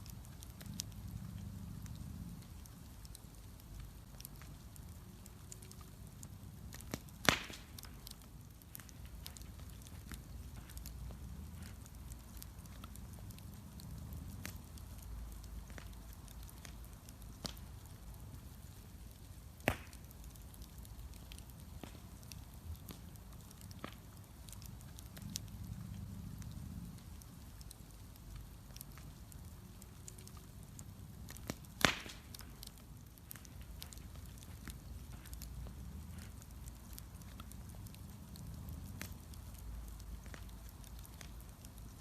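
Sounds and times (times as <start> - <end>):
bonfire crackling and popping: 0.0 - 42.0.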